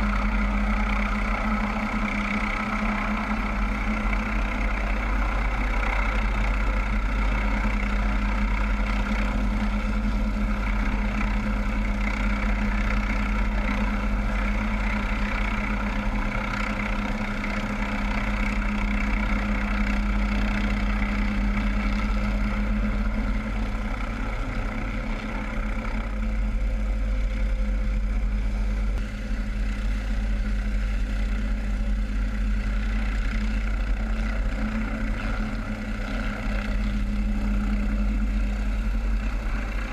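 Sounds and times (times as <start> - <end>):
helicopter engine and rotors drone: 0.0 - 39.9.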